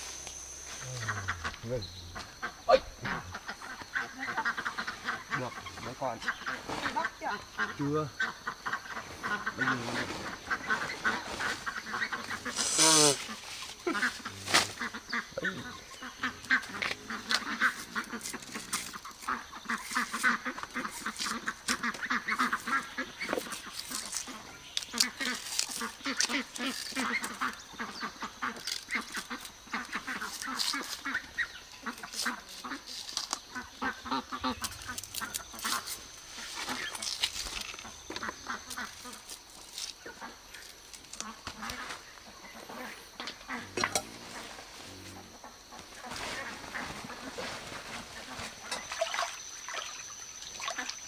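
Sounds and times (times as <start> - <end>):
short animal calls: 0.4 - 5.8.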